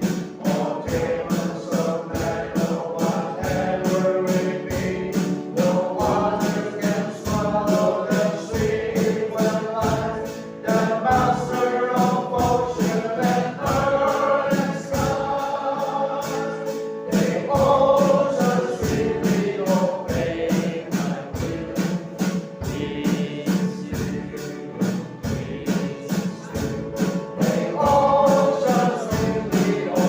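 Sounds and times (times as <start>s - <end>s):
choir singing gospel: 0.0s - 30.0s
percussion beat: 0.0s - 30.0s.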